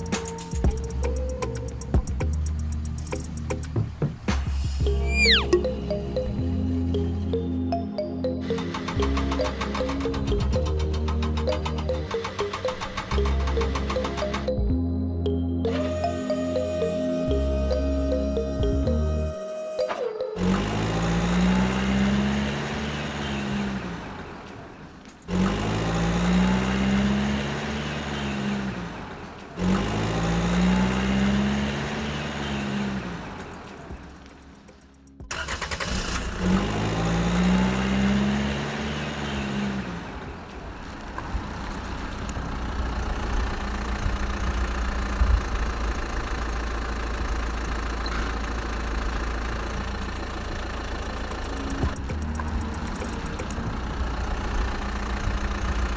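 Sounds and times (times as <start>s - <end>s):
engine revving and idling: 20.4s - 55.9s.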